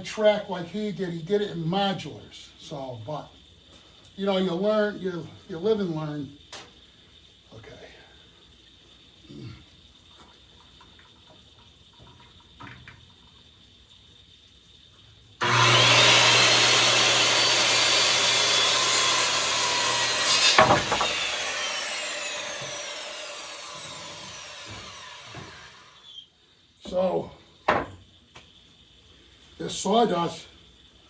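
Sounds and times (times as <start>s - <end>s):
electric saw cutting wood: 15.4s - 26.2s
saw blade spinning down: 15.4s - 26.2s.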